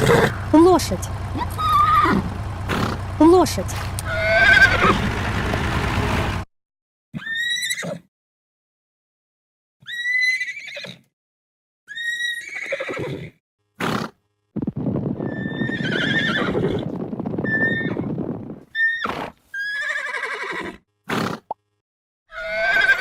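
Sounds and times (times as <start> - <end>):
horse whinnying: 0.0 - 0.5, 1.5 - 3.0, 4.0 - 5.1, 7.2 - 8.1, 9.8 - 11.1, 11.9 - 14.2, 15.3 - 18.1, 18.7 - 21.4, 22.3 - 23.0.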